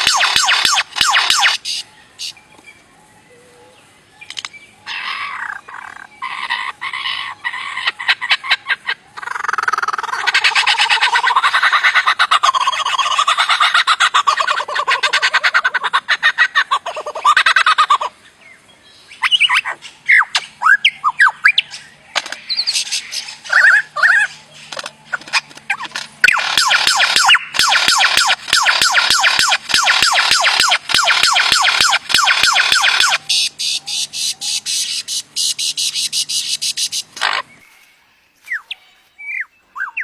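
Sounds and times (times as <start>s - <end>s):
songbird rattling call: 0.0s - 2.6s, 19.2s - 37.7s
bird whistled notes and chirps: 19.0s - 25.2s, 26.2s - 37.9s, 38.5s - 40.0s.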